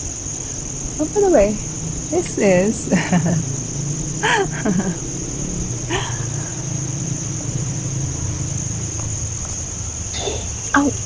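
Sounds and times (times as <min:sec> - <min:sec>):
insects trilling: 0:00.0 - 0:11.0
low steady hum: 0:00.0 - 0:11.0.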